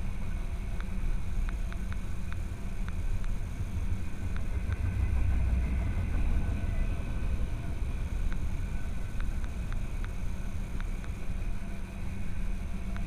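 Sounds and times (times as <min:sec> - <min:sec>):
low vehicle rumble: 0:00.0 - 0:13.0
faint ticks: 0:00.5 - 0:03.5, 0:04.3 - 0:04.9, 0:08.2 - 0:13.0.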